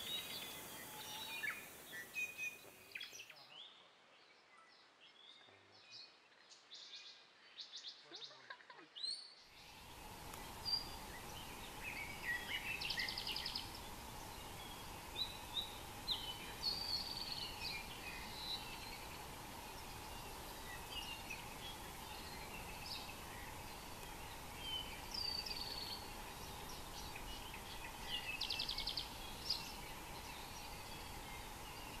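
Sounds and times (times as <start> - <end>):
steady hiss and hum: 0.0 - 3.4, 9.5 - 32.0
forest birds singing: 0.0 - 32.0.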